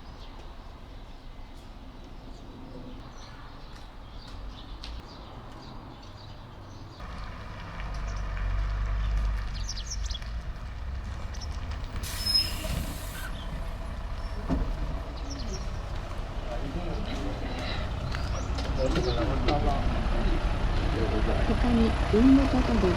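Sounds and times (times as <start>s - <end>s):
birds chirping faintly: 0.0s - 22.9s
diesel engine rumble: 7.0s - 22.9s
short hiss: 12.0s - 13.4s.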